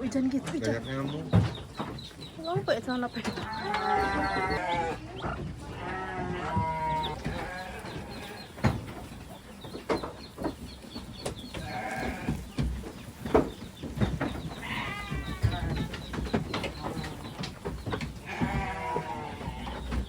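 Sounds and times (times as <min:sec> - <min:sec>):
goats bleating: 0:03.4 - 0:08.6, 0:11.6 - 0:12.7, 0:14.5 - 0:17.4, 0:18.0 - 0:20.0.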